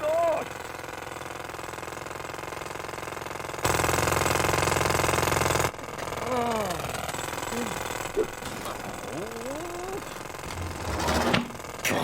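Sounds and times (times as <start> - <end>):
mechanical engine hum: 0.0 - 12.0.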